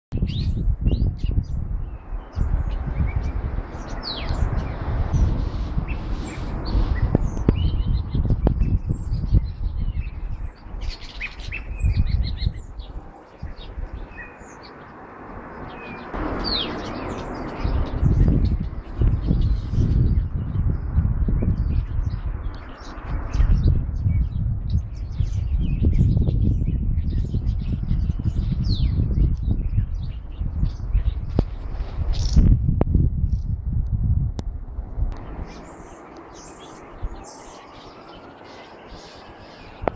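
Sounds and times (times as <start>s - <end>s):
small birds chirping and singing: 0.1s - 34.0s, 35.1s - 39.9s
heavy low rumble: 23.1s - 37.2s.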